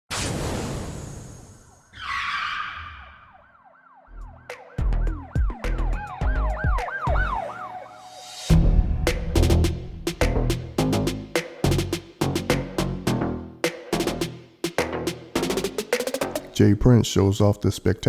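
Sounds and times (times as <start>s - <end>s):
siren-like synth tone: 1.5s - 8.5s
deep bass hits: 8.5s - 12.6s.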